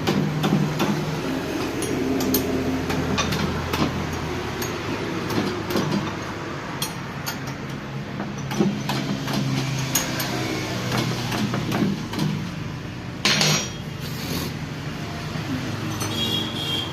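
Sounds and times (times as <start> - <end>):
hand tools clinking on metal parts: 1.6 - 12.3, 13.2 - 13.9, 15.5 - 16.6.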